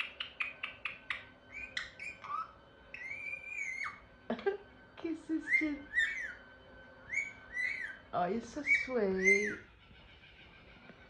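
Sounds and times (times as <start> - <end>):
parrot clicking notes: 0.0 - 2.5
parrot chirps: 0.0 - 4.1, 5.4 - 11.0
parrot whistle: 0.0 - 4.1, 5.4 - 9.7.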